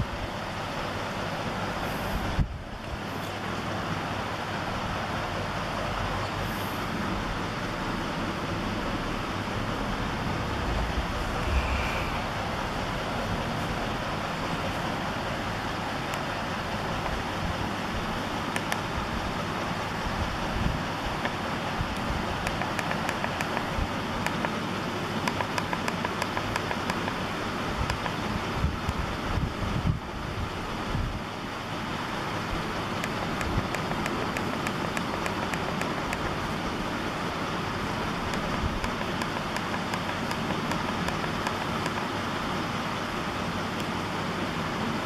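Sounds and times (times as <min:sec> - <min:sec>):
rushing wind and road noise: 0:01.7 - 0:45.0
light repeating tick: 0:18.5 - 0:18.9, 0:22.0 - 0:24.6, 0:25.2 - 0:27.2, 0:27.8 - 0:28.2, 0:33.0 - 0:36.4, 0:38.3 - 0:42.1.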